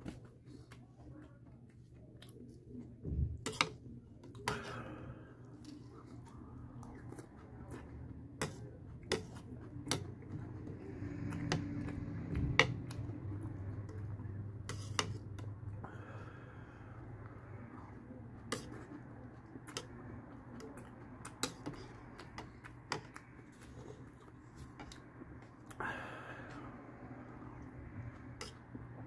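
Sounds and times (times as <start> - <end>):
low steady hum: 0.0 - 29.0
soft chewing: 0.0 - 29.0
spoon scraping plastic bowl: 14.7 - 15.3.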